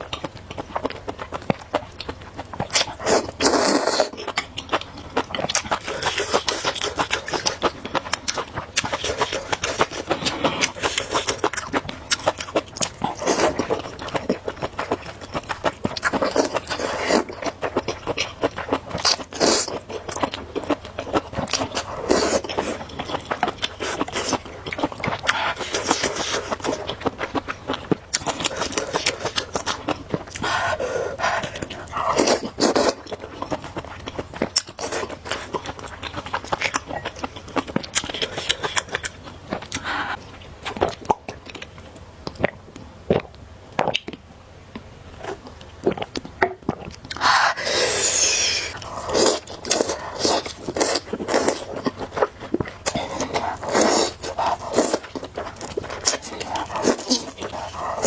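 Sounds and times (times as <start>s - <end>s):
mouth chewing clicks: 0.0s - 58.0s
noodles being slurped: 2.8s - 4.2s, 28.2s - 33.1s, 47.1s - 58.0s.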